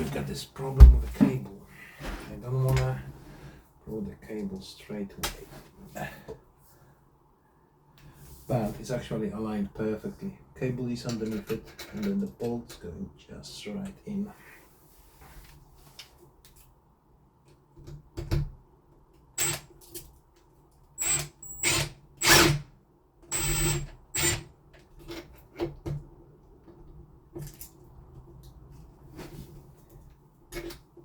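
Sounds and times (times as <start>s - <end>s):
drill driving screws: 19.4s - 19.6s, 21.0s - 22.6s, 23.3s - 24.4s.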